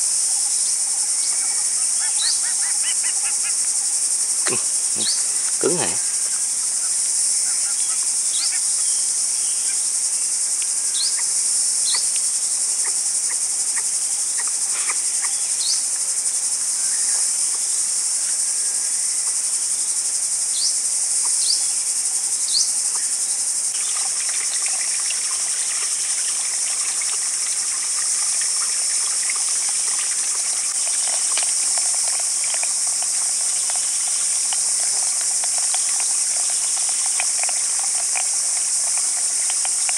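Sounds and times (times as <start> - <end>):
insect chorus: 0.0 - 39.9
faint ticks and crackling: 22.9 - 39.9.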